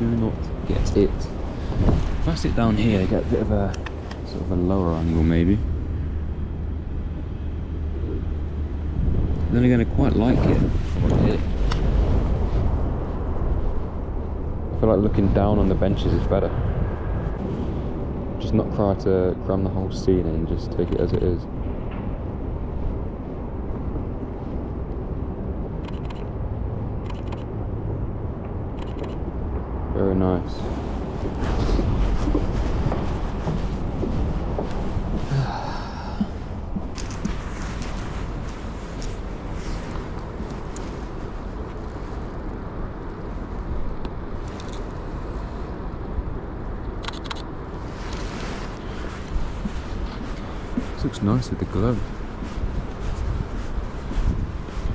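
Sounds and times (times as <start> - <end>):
low rumble of city traffic: 0.0 - 54.9
sharp clicks: 25.8 - 26.3, 28.8 - 29.2, 47.0 - 47.5
camera shutter clicks: 47.0 - 47.4.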